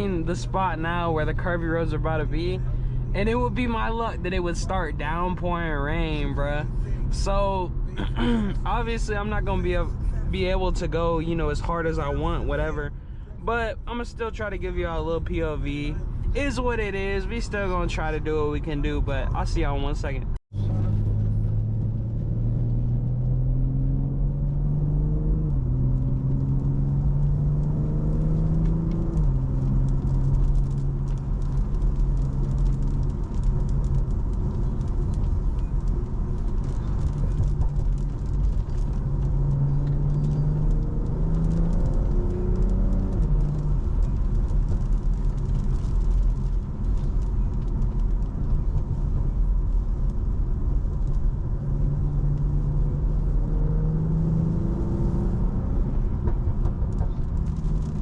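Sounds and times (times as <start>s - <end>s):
car engine revving and shifting: 20.5s - 49.5s, 50.1s - 58.0s.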